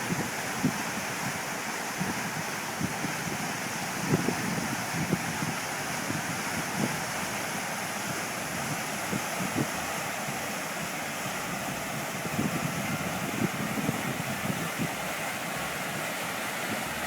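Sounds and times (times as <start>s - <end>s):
river rushing: 0.0s - 17.0s
wind thumps on microphone: 11.6s - 15.0s.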